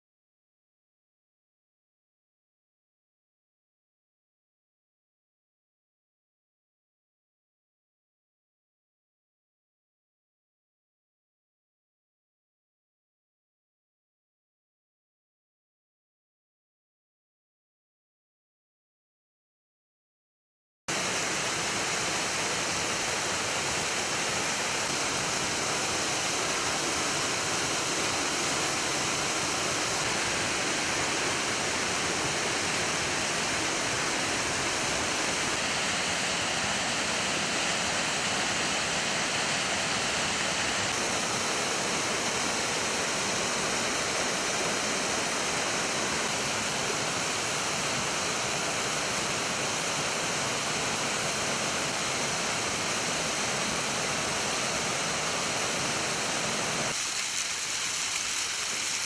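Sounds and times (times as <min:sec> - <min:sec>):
waterfall rushing: 0:20.9 - 0:59.0.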